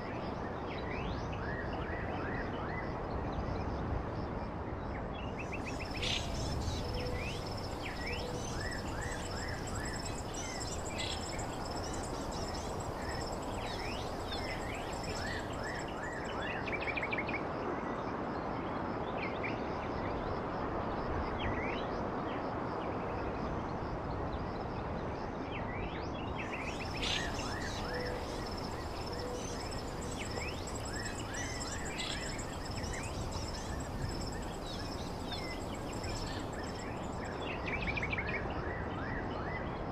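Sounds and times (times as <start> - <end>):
songbirds chirping: 5.2 - 17.1, 26.2 - 38.2
rushing background noise: 26.5 - 37.5.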